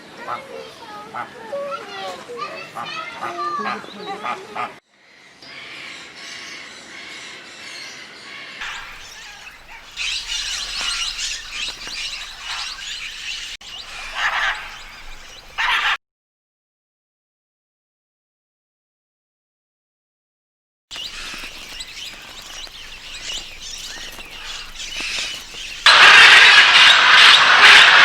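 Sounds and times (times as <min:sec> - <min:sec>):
songbirds chirping and twittering: 0:05.0 - 0:16.0, 0:20.9 - 0:26.9.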